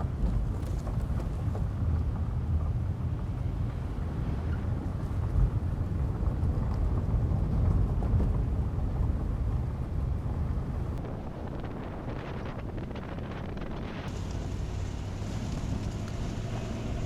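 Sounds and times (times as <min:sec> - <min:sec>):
gusting wind buffeting microphone: 0:00.0 - 0:17.0.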